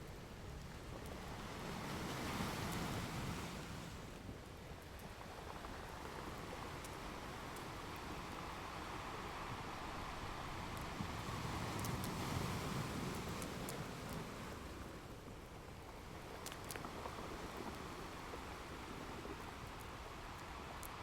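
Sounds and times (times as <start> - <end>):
ocean waves washing ashore: 0.7 - 21.0
faint fireplace crackles: 15.7 - 21.0.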